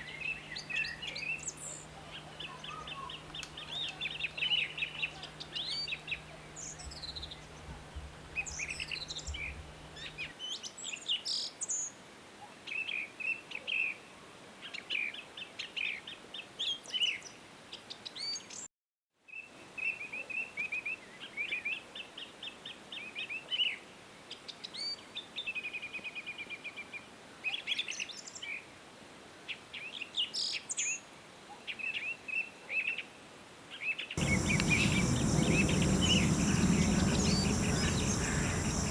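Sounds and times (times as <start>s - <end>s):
songbirds chirping: 0.0s - 10.2s, 34.2s - 38.9s.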